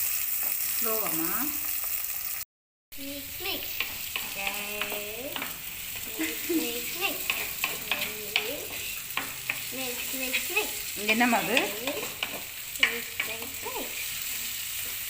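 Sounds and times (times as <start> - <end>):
onions sizzling in oil: 0.0 - 2.4, 3.0 - 15.0.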